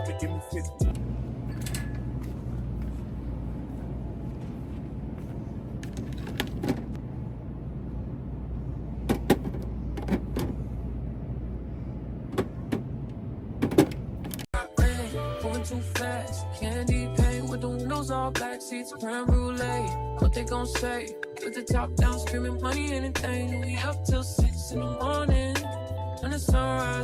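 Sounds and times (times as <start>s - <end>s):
low steady rumble: 0.0s - 18.4s, 19.3s - 20.9s.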